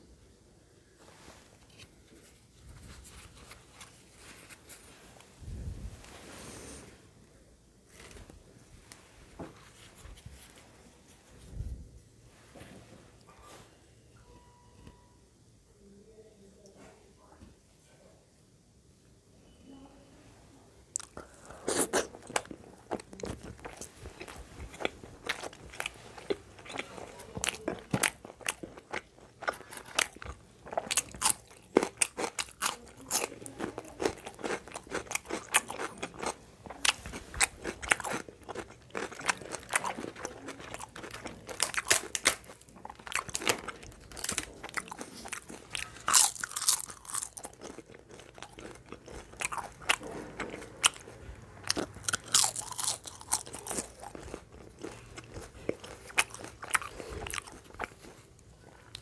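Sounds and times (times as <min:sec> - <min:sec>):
person chewing crunchy food: 0:21.0 - 0:59.0.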